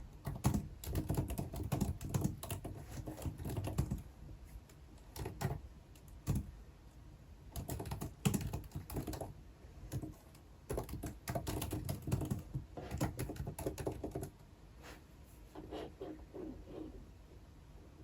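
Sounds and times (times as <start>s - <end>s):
typing on computer keyboard: 0.2s - 4.1s, 5.0s - 6.5s, 7.5s - 14.4s.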